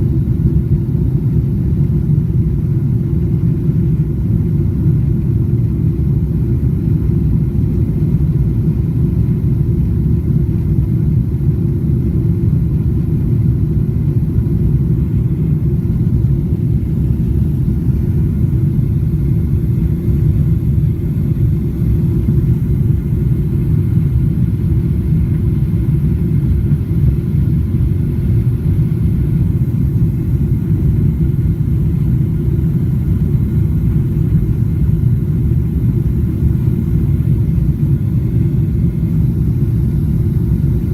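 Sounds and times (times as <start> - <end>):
airflow over fuselage: 0.0 - 40.9
jet engines low rumble: 0.0 - 40.9.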